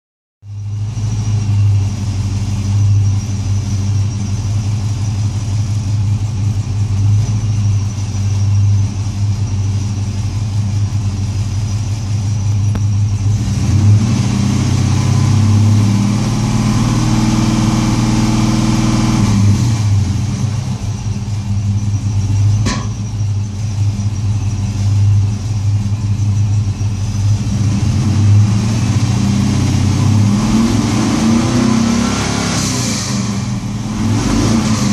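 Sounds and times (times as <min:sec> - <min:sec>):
car engine idling with misfire: 0:00.4 - 0:34.9.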